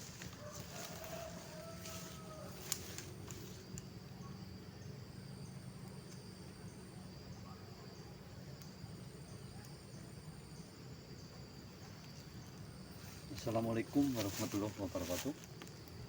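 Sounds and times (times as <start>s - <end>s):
insect trill: 0.0s - 16.0s
insects buzzing: 0.0s - 16.0s.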